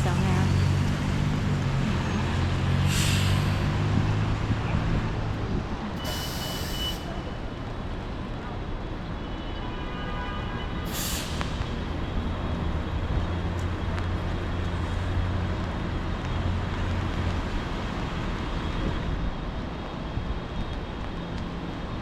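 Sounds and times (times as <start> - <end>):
heavy vehicle engine rumble: 0.0 - 9.0, 10.9 - 22.0
city traffic hiss: 0.0 - 9.3, 9.9 - 22.0.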